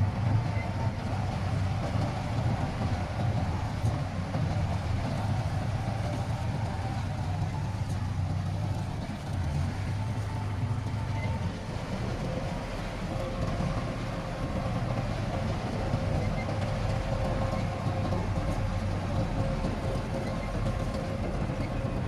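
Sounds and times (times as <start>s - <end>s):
heavy diesel machinery rumbling: 0.0s - 22.0s.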